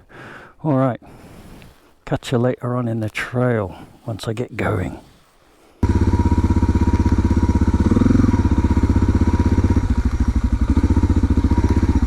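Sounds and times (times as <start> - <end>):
motorcycle engine running: 5.8 - 12.0.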